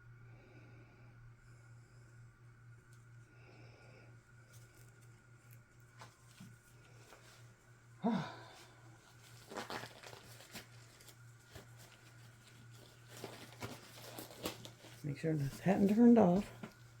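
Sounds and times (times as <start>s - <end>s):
rustling: 4.3s - 7.8s, 8.4s - 17.0s.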